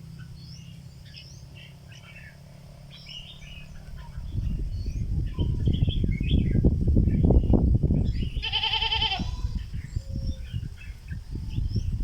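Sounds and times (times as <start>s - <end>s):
bird chirping song: 0.0s - 12.0s
short wavering bleat: 8.4s - 9.5s.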